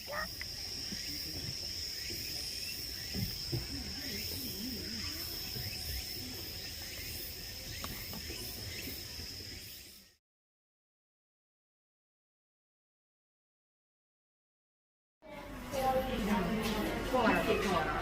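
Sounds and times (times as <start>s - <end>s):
insects buzzing: 0.0s - 10.2s.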